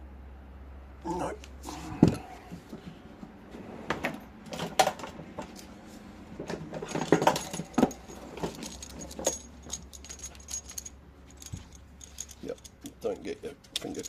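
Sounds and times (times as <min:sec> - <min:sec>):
metallic clinks and knocks: 0:06.5 - 0:14.0.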